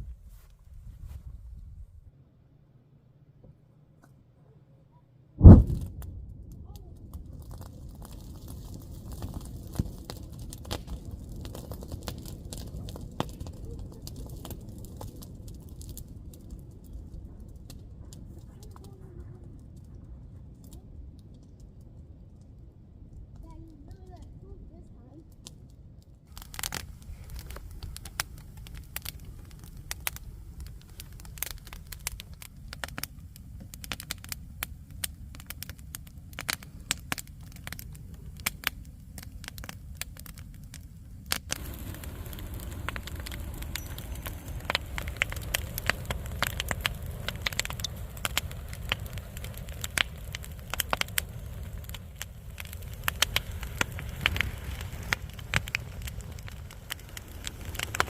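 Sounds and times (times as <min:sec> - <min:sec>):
low rumble of flames: 0:00.0 - 0:02.4, 0:05.3 - 0:58.0
wood fire crackling and popping: 0:05.4 - 0:58.0.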